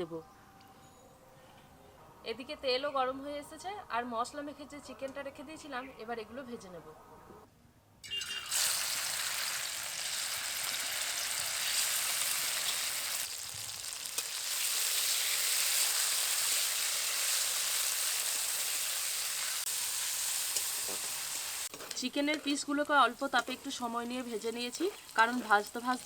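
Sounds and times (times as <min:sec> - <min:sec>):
chicken sizzling in hot oil: 0:08.1 - 0:26.0.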